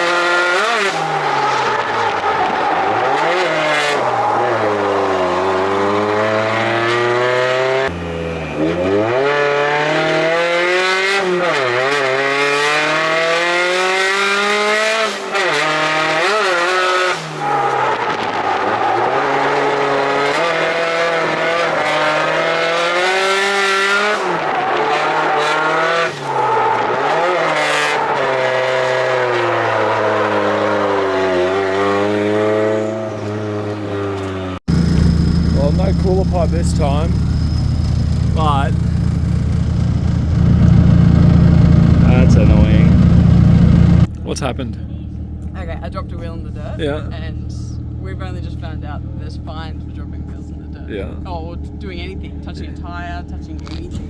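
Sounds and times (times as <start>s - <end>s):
tyres squealing: 0.0s - 9.6s, 13.9s - 40.1s
car engine revving: 0.0s - 54.0s.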